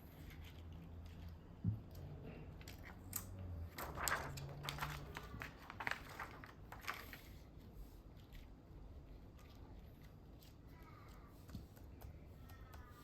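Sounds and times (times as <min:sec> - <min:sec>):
crinkling rustles: 0:02.6 - 0:07.6.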